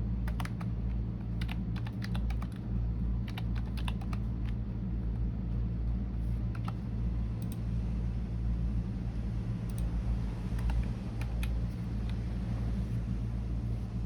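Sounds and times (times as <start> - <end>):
low hum: 0.0 - 14.0
keyboard keystroke clicks: 0.3 - 0.7, 3.3 - 4.2, 6.6 - 6.8.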